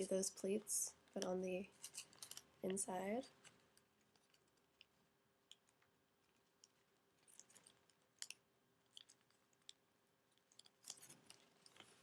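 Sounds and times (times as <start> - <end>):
paper crinkling: 1.7 - 5.0, 10.4 - 12.0.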